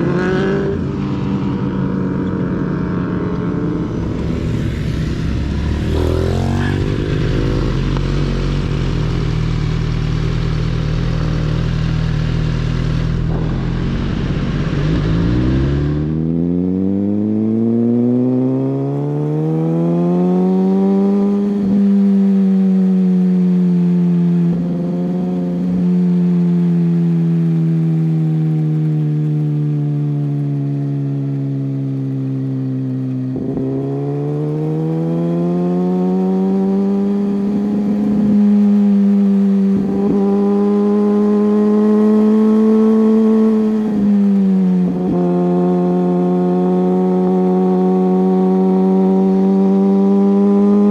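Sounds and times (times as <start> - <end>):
motorcycle engine running: 0.0 - 17.7, 20.3 - 50.9
heavy wind rush: 0.9 - 9.0.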